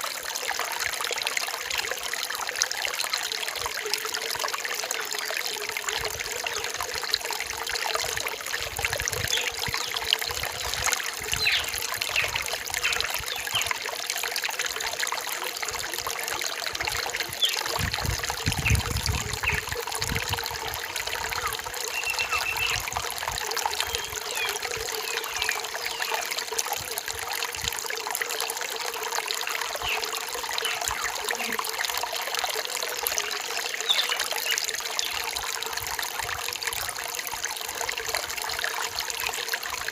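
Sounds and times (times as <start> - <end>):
stream babbling over stones: 0.0 - 39.9
faint bird chirps: 21.4 - 22.8.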